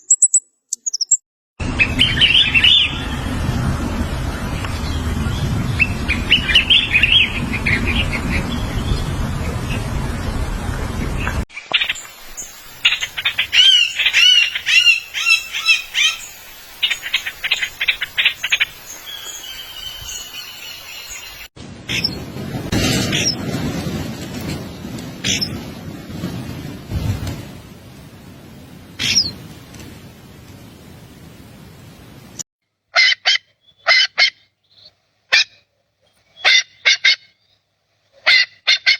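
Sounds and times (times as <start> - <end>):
small bird chirping: 0.0 - 1.2, 11.6 - 22.2
steady background hiss: 11.7 - 21.5.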